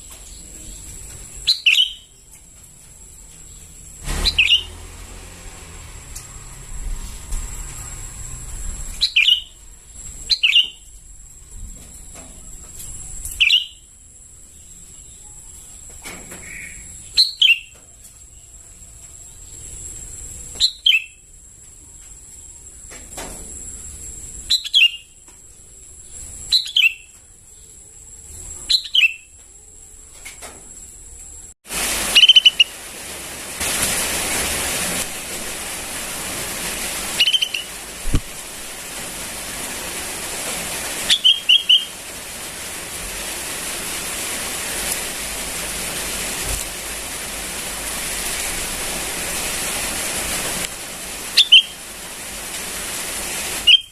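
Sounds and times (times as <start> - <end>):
steady rushing hiss: 0.0 - 17.2, 30.2 - 53.9
bird calling: 0.4 - 2.2, 4.2 - 4.8, 9.0 - 9.6, 10.3 - 10.9, 13.3 - 13.8, 32.0 - 32.8, 37.1 - 37.9, 41.0 - 42.0, 51.3 - 51.8, 53.6 - 53.9.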